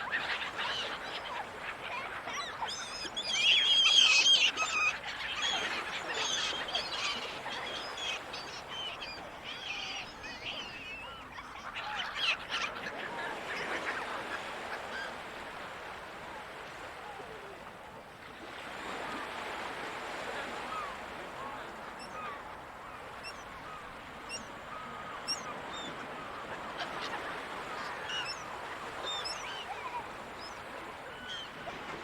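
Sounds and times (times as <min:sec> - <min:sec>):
seagulls squawking: 0:00.1 - 0:15.4, 0:22.0 - 0:32.0.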